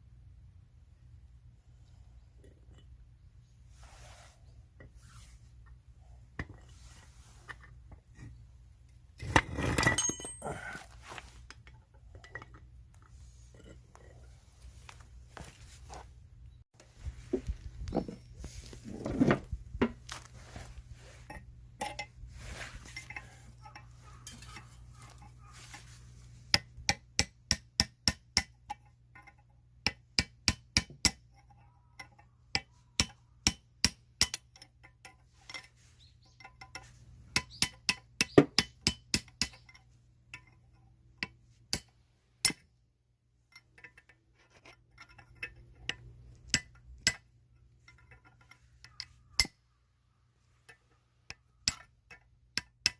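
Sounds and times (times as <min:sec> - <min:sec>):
tools clinking on metal: 0:09.2 - 0:12.7, 0:21.2 - 0:22.2, 0:22.8 - 0:25.9, 0:26.5 - 0:42.7, 0:43.5 - 0:49.6, 0:50.6 - 0:52.9.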